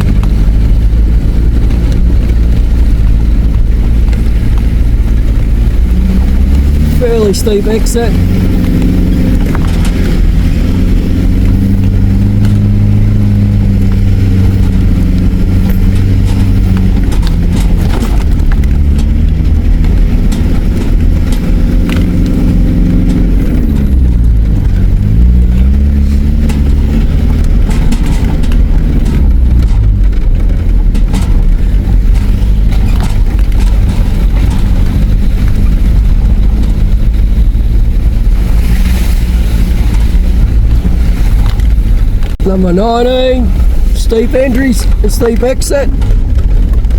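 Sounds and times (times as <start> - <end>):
vehicle engine pulling at low revs: 0.0 - 46.9
vehicle knocks and clunks: 8.3 - 38.7, 44.6 - 46.9.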